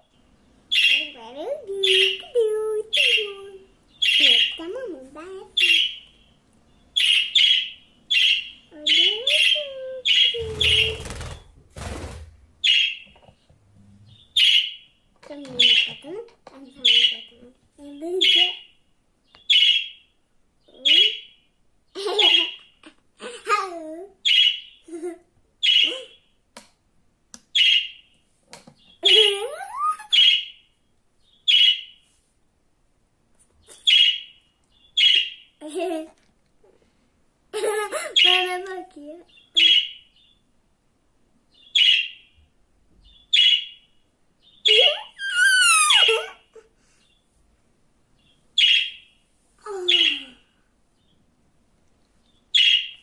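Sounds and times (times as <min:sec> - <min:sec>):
budgerigar chirping: 0:03.9 - 0:04.6, 0:06.9 - 0:11.0, 0:12.6 - 0:13.0, 0:14.1 - 0:14.9, 0:19.4 - 0:20.0, 0:27.6 - 0:28.0, 0:31.4 - 0:32.0, 0:33.7 - 0:35.5, 0:39.3 - 0:40.4, 0:41.6 - 0:42.3, 0:43.1 - 0:43.8, 0:48.6 - 0:49.1, 0:52.5 - 0:53.0.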